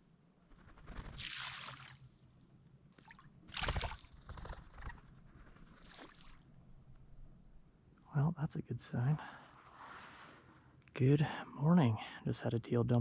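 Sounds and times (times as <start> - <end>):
water splashing and sloshing: 1.2 - 2.2, 2.9 - 4.2, 5.6 - 6.5, 9.3 - 10.8.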